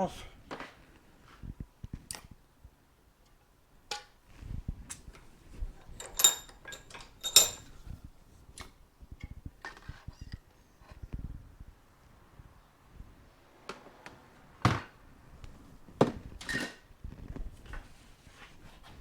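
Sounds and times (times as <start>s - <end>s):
hand tools clicking on metal: 5.8s - 7.8s
ringing metallic clinks: 6.0s - 7.7s.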